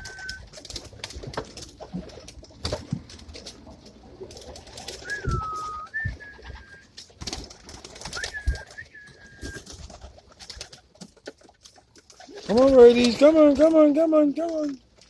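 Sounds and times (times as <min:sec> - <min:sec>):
pigeons cooing: 0:00.0 - 0:02.4, 0:03.7 - 0:06.9, 0:07.6 - 0:10.8
wing flutters: 0:00.0 - 0:13.6.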